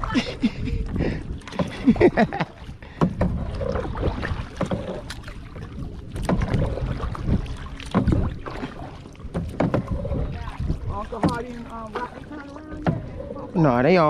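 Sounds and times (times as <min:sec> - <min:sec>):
water sloshing against kayak: 0:00.0 - 0:14.0
wind rumbling on microphone: 0:00.0 - 0:14.0
small knocks and splashes: 0:01.0 - 0:13.9.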